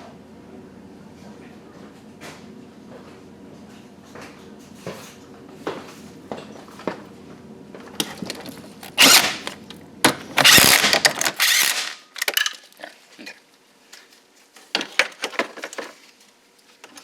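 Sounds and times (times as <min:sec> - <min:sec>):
tools clicking and clinking: 0:07.9 - 0:12.8
impact wrench driving bolts: 0:08.0 - 0:12.4.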